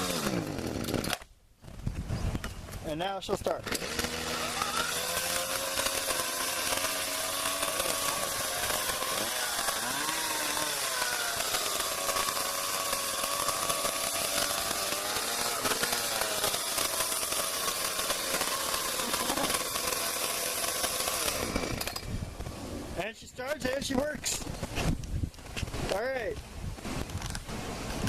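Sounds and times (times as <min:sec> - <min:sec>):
chainsaw engine running: 0:00.0 - 0:01.2, 0:03.6 - 0:22.8.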